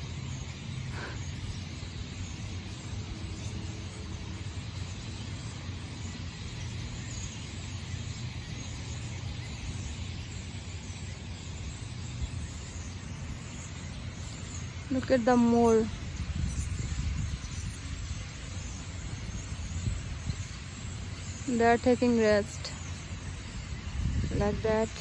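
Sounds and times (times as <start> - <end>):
outdoor background rumble: 0.0 - 25.0.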